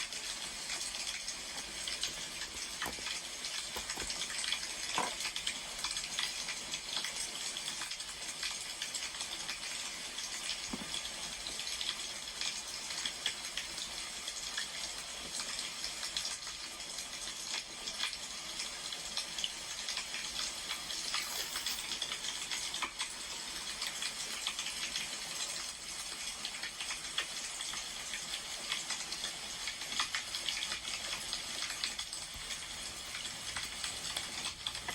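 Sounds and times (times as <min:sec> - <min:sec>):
wood fire crackling: 0:00.0 - 0:05.4.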